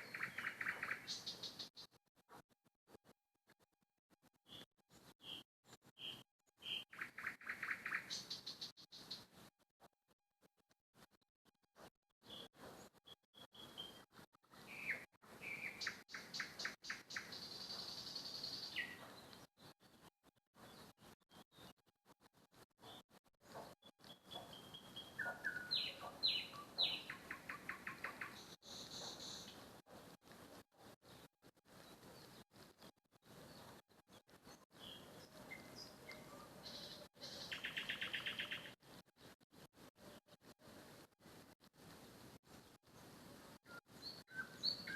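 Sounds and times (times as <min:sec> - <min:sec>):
rapid bird trill: 0:00.0 - 0:01.9
songbirds chirping: 0:00.0 - 0:02.0, 0:04.5 - 0:09.5, 0:12.2 - 0:21.8, 0:22.5 - 0:41.0, 0:41.8 - 0:44.9
songbird whistling and trilling: 0:24.1 - 0:29.6, 0:43.7 - 0:44.9.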